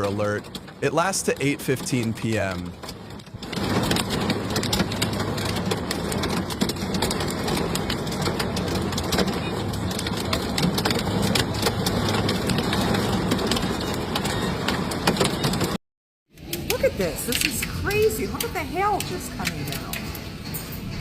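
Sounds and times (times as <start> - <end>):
hailstones pelting hard surfaces: 0.0 - 15.8, 16.4 - 20.4
heavy rain rushing: 0.0 - 15.8.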